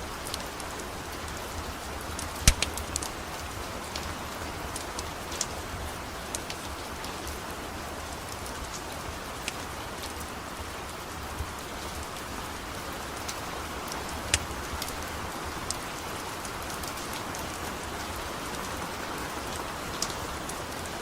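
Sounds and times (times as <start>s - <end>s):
steady rain falling: 0.0s - 21.0s
sharp crackles: 2.3s - 3.1s.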